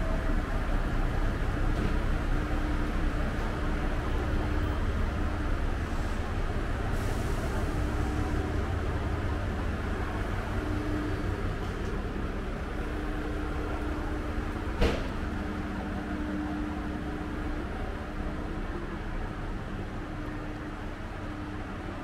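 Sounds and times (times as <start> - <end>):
train cab rumble: 0.0 - 22.0.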